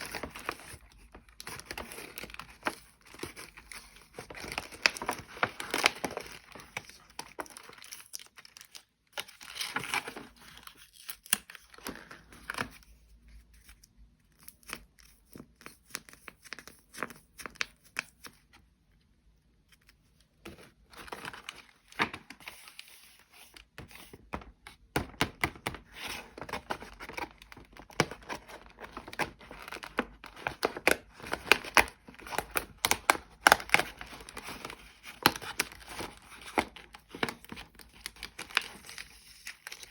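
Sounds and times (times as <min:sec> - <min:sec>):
packaging crinkled and torn open: 0:00.0 - 0:12.7, 0:26.3 - 0:39.9.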